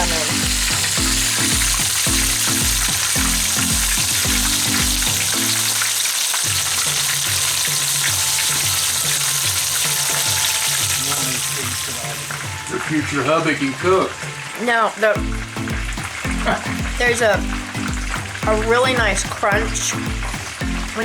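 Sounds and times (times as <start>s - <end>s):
background music with bass line: 0.0s - 5.9s, 15.2s - 21.0s
oysters sizzling in hot oil: 0.0s - 21.0s.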